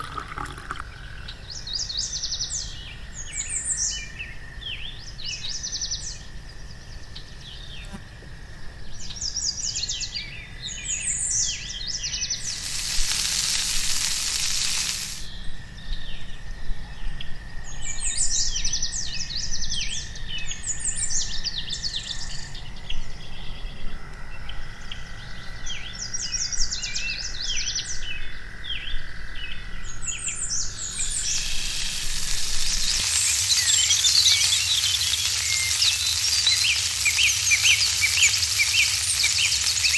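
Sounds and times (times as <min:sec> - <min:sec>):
sizzling hiss: 0:00.0 - 0:01.0, 0:12.3 - 0:15.3, 0:30.5 - 0:39.9
birds chirping: 0:10.7 - 0:15.3, 0:29.9 - 0:39.9.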